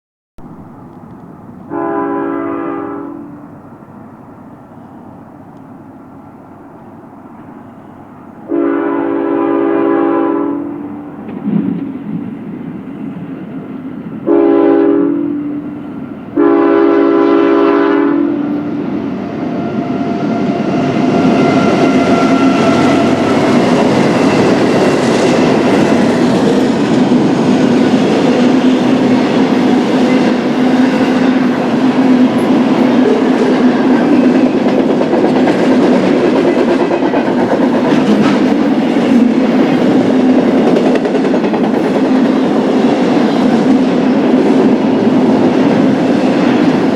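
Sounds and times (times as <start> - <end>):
locomotive air horn blasts: 1.7 - 3.4, 8.5 - 11.0, 14.3 - 15.6, 16.4 - 18.6, 19.7 - 23.5
train wheels clacking on rails: 10.8 - 14.7, 15.4 - 46.9
locomotive engine running: 18.5 - 46.9.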